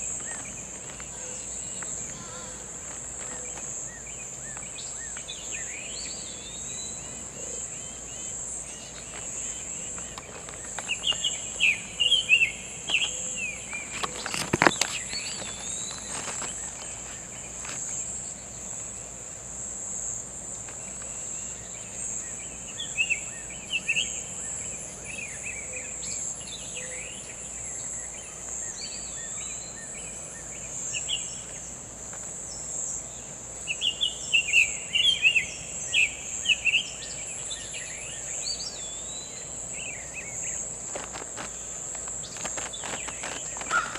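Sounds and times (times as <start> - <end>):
high insect drone: 0.0 - 43.9.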